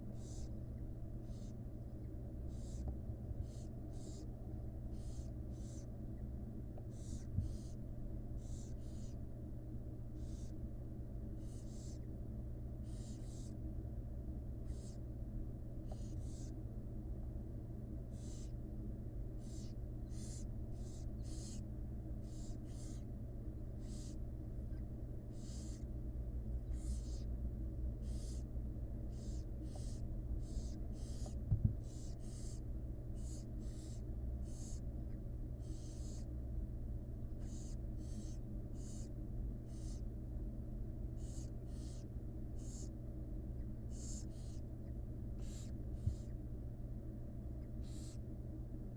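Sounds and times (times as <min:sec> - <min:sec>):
steady low hum: 0:00.0 - 0:48.9
owl chicks raspy begging hisses: 0:00.1 - 0:00.6, 0:01.2 - 0:01.6, 0:02.5 - 0:05.9, 0:06.9 - 0:07.8, 0:08.4 - 0:09.2, 0:10.2 - 0:10.6, 0:11.3 - 0:12.1, 0:12.8 - 0:13.6, 0:14.6 - 0:15.1, 0:15.9 - 0:16.6, 0:18.1 - 0:18.6, 0:19.4 - 0:23.1, 0:23.8 - 0:25.9, 0:26.6 - 0:27.3, 0:27.9 - 0:28.5, 0:29.1 - 0:34.9, 0:35.6 - 0:36.3, 0:37.4 - 0:40.1, 0:41.1 - 0:43.0, 0:43.9 - 0:44.6, 0:45.4 - 0:46.4, 0:47.7 - 0:48.2.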